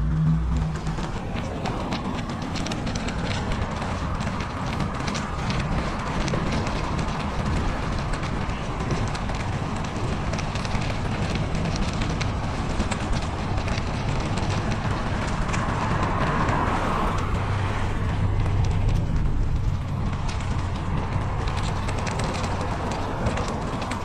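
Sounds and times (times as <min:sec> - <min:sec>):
bicycle riding on snow: 0:00.0 - 0:24.0.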